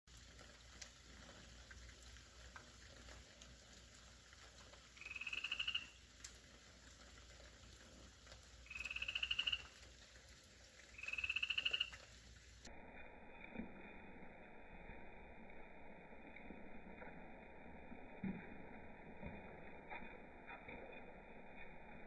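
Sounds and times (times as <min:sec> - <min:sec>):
slowed animal croak-like trills: 0:04.5 - 0:12.3.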